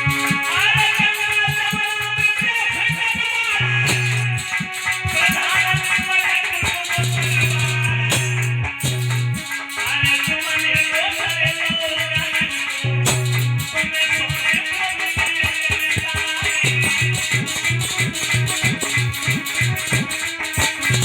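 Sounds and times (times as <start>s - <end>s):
percussion beat: 0.0s - 21.0s
wavering melody: 3.5s - 21.0s.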